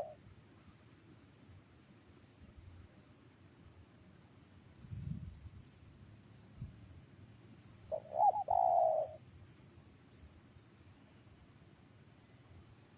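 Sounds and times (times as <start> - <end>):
insects chirping: 1.7 - 10.4
dove cooing: 7.9 - 9.2.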